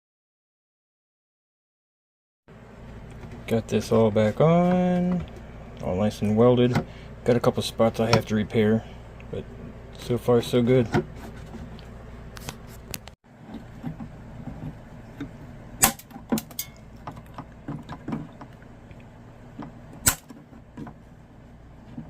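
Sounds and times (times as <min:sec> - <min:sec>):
low steady hum: 0:02.5 - 0:22.0.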